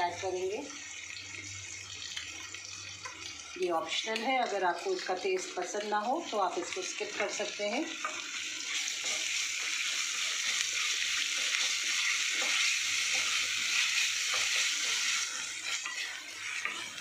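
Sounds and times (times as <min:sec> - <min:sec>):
onions sizzling in hot oil: 0:00.0 - 0:17.0
wooden spatula stirring: 0:08.0 - 0:17.0.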